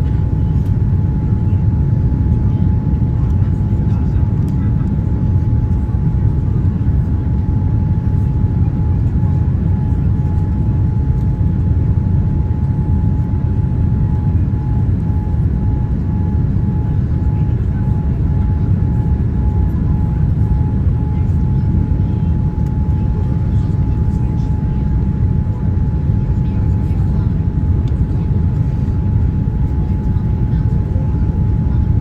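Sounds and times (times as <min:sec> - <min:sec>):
engine and airflow rumble: 0:00.0 - 0:32.0.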